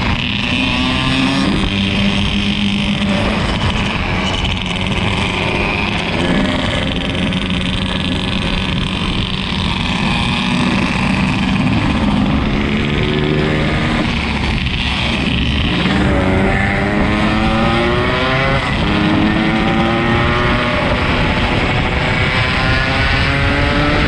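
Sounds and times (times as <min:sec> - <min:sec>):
two-stroke motorcycle engine: 0:00.0 - 0:24.0
wind and road noise: 0:00.0 - 0:24.0.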